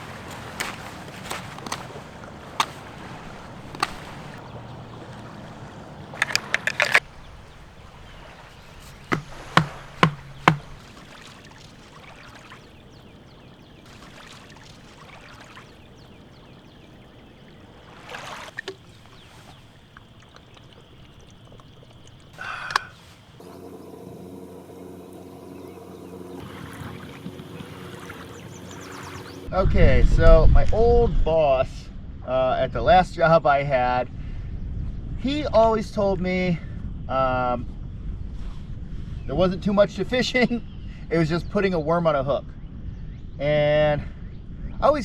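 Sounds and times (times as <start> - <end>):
sharp knocks and clicks: 6.2 - 7.0, 8.8 - 10.8
rattle of clicks: 6.2 - 7.1
hollow knocks: 8.8 - 11.3.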